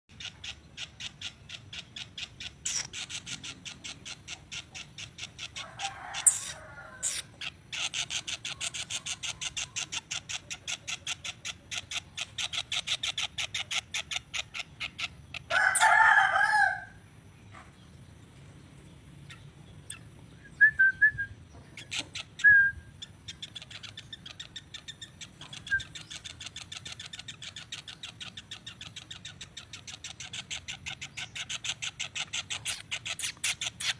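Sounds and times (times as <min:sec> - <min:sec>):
songbird sharp repeated chirps: 0:00.1 - 0:05.6, 0:06.2 - 0:15.9, 0:19.2 - 0:33.9
rooster-like call: 0:05.6 - 0:07.3, 0:15.5 - 0:17.0.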